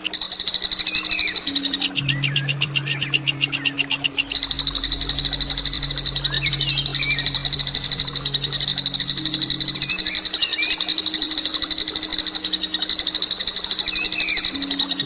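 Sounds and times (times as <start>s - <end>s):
faint chirps: 0.0s - 15.0s
songbird rolling trill: 0.0s - 15.0s
steady low hum: 0.0s - 15.0s.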